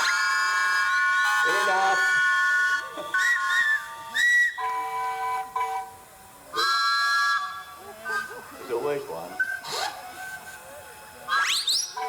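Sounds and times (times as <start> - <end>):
steam engine whistles blowing: 0.0 - 10.7, 11.3 - 12.0.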